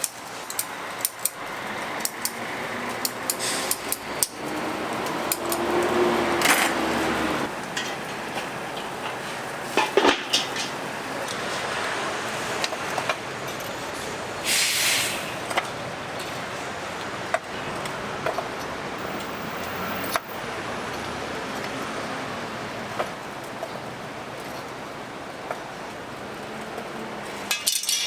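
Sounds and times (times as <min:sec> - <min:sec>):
utensils clicking and knocking: 0:00.0 - 0:14.2, 0:26.6 - 0:28.0
kitchen background noise: 0:00.0 - 0:28.0
short hiss: 0:03.4 - 0:03.8, 0:14.4 - 0:15.4.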